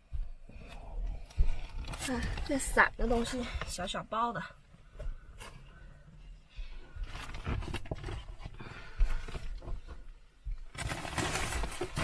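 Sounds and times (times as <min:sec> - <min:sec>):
crinkling: 0:06.9 - 0:12.0
bags rustling: 0:10.7 - 0:12.0.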